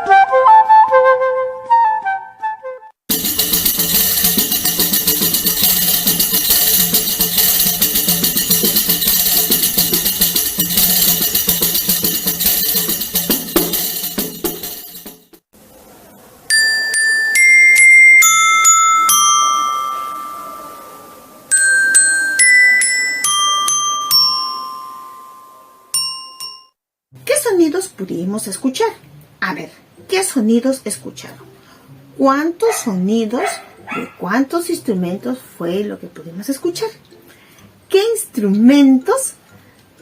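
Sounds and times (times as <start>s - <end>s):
bright jingling instrument: 3.1s - 15.4s, 16.5s - 26.8s
xylophone striking single notes: 16.5s - 26.7s.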